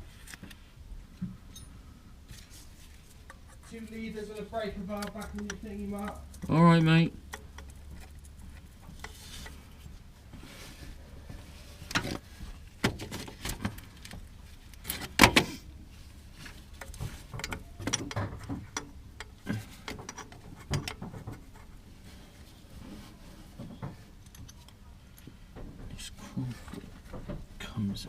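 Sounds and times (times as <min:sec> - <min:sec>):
tools and parts knocking and rattling: 0:03.1 - 0:10.0, 0:11.3 - 0:15.6, 0:16.3 - 0:21.8, 0:23.6 - 0:27.6.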